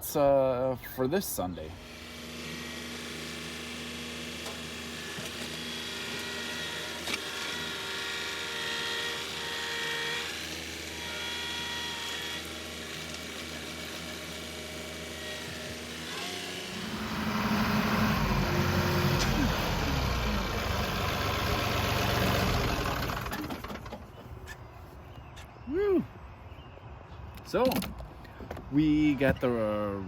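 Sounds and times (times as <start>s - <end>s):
tractor diesel engine running: 12.1s - 24.6s
high-pitched whine: 15.2s - 21.7s.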